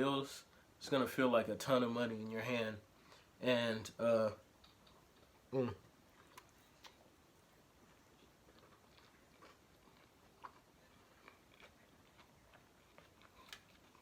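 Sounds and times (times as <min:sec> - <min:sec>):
person chewing: 0:04.6 - 0:07.2, 0:07.8 - 0:14.0.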